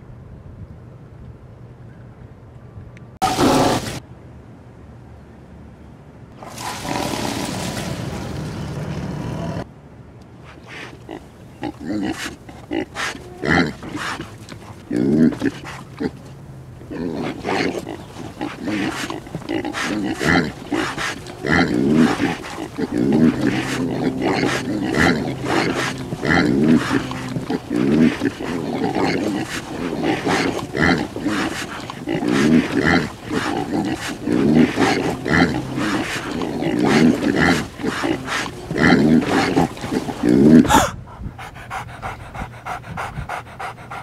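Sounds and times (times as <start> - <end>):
animal-like grunting: 3.2 - 4.0, 10.7 - 44.0.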